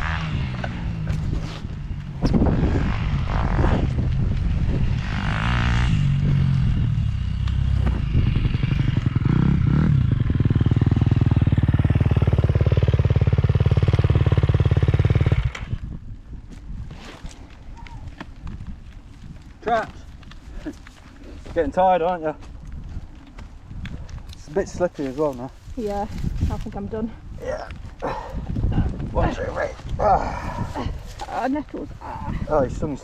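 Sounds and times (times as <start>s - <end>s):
motocross bike engine revving: 0.0s - 15.8s.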